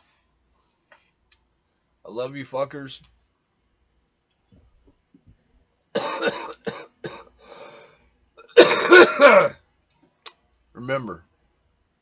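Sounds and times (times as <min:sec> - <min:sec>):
man coughing harshly: 0:06.0 - 0:07.4, 0:08.4 - 0:09.6.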